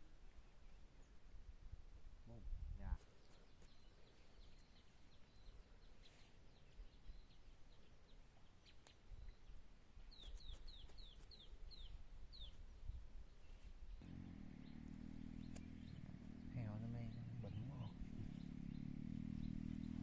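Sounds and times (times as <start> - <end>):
bird chirping faintly: 2.3 - 20.0
low steady hum: 14.0 - 20.0.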